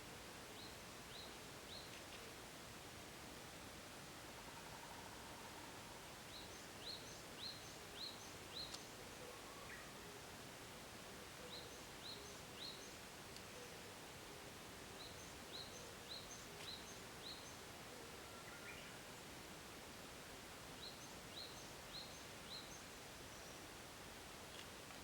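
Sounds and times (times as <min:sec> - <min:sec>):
faint outdoor hiss: 0:00.0 - 0:25.0
songbird singing: 0:00.5 - 0:02.2, 0:06.2 - 0:10.3, 0:11.2 - 0:14.0, 0:14.9 - 0:19.4, 0:20.8 - 0:23.8.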